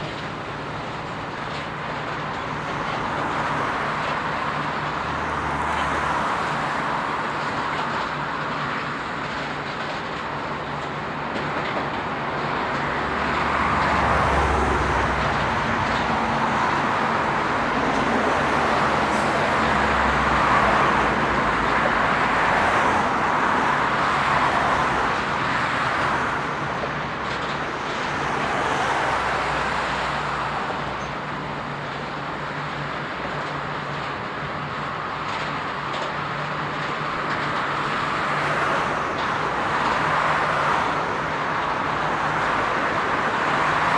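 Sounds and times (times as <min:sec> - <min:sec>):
train rolling past: 0:00.0 - 0:43.9.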